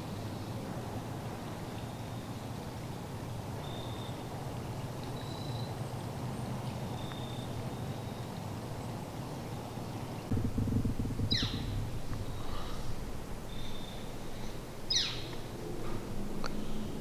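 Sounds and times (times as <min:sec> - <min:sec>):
steady low rumble: 0:10.3 - 0:17.0.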